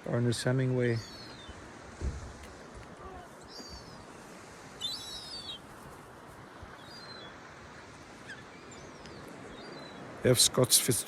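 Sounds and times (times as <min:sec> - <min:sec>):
background hiss: 0:00.0 - 0:11.0
seagulls calling: 0:00.9 - 0:01.7, 0:02.9 - 0:05.8, 0:06.7 - 0:07.4, 0:08.1 - 0:10.5.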